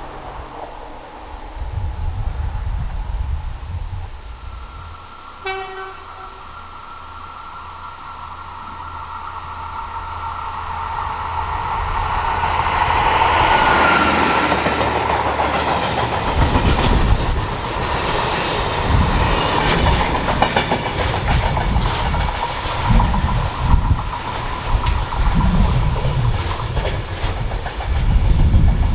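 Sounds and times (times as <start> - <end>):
train passing at speed: 0.0 - 28.9
wheels clattering over rail joints: 10.8 - 28.9.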